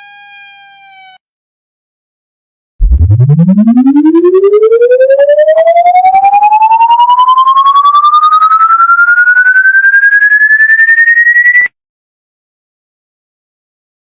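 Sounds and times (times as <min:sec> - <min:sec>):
electronic tone rising in pitch: 0:02.8 - 0:11.7.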